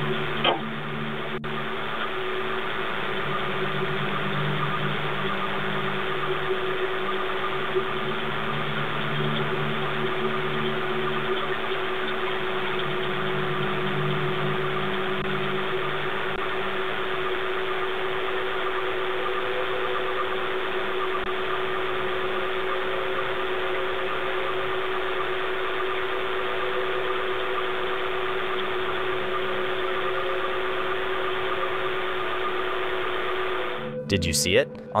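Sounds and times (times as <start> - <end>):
steady hum: 0.0 - 23.7
microphone hiss: 33.0 - 35.0.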